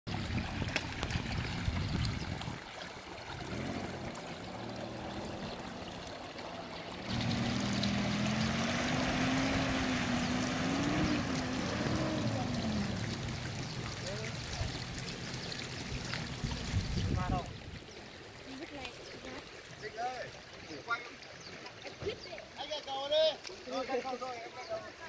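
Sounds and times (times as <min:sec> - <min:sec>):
shallow stream rushing: 0:00.1 - 0:25.0
engine revving: 0:03.4 - 0:05.5, 0:07.1 - 0:14.5.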